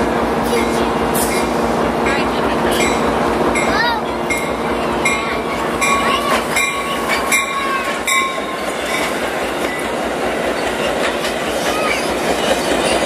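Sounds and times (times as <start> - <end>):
train rumbling past: 0.0 - 13.0
wheels clicking over rail joints: 3.6 - 13.0.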